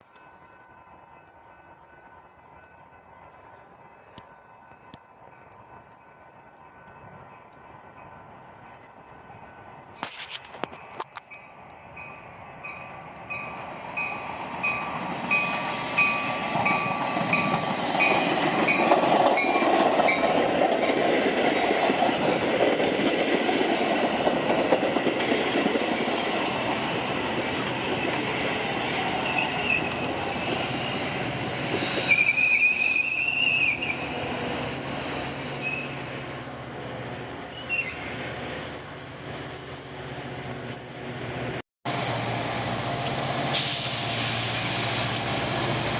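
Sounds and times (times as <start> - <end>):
train rolling on rails: 0.0 - 45.9
high-pitched wheel squeal: 31.8 - 41.5.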